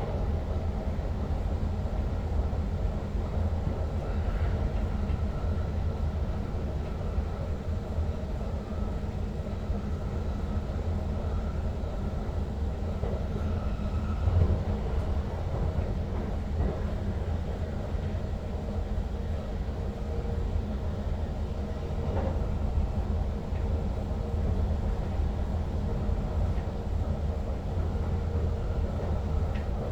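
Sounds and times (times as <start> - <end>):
train running rumble: 10.7 - 29.9.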